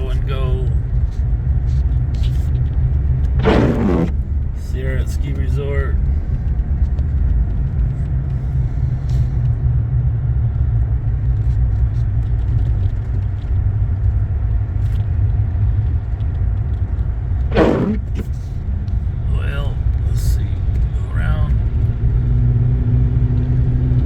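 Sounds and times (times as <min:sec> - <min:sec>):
car engine and road noise: 0:00.0 - 0:24.0
short loud noise: 0:03.4 - 0:04.2, 0:17.5 - 0:18.3.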